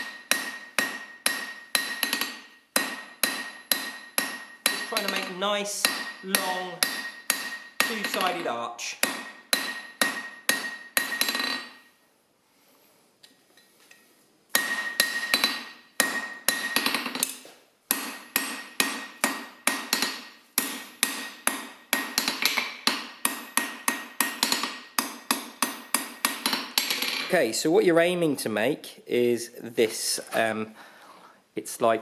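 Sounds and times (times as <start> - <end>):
hammer ringing on anvil: 0.0 - 11.9, 14.6 - 17.2.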